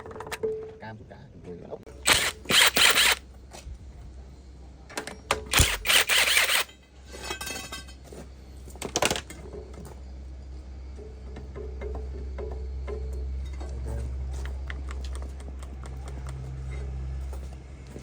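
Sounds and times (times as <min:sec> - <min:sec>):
short scraping bursts: 0:02.0 - 0:03.2, 0:05.5 - 0:06.7
metal tools clinking: 0:05.1 - 0:08.1.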